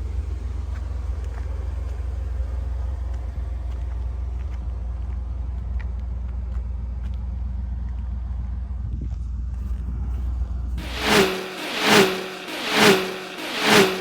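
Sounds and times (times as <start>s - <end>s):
car engine running: 10.8s - 14.0s.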